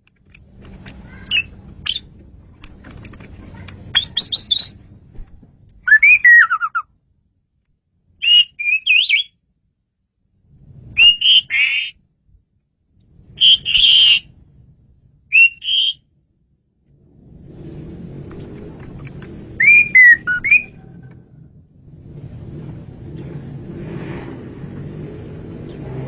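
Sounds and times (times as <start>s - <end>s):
starling singing whistled phrases: 1.3s - 2.1s, 3.9s - 4.8s, 5.9s - 6.8s, 8.2s - 9.3s, 11.0s - 12.0s, 13.4s - 14.3s, 15.3s - 16.0s, 19.6s - 20.8s.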